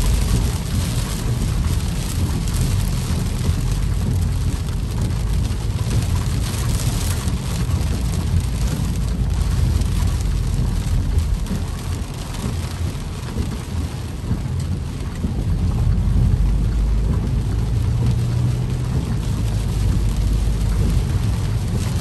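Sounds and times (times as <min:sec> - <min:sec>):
heavy rain drumming on car roof: 0:00.0 - 0:22.0
low rumble: 0:00.0 - 0:22.0.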